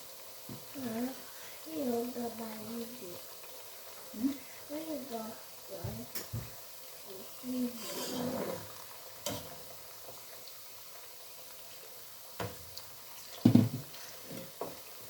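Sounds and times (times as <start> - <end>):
slices sizzling in oil: 0.0 - 15.0
utensil knocking and scraping pan: 7.8 - 8.6.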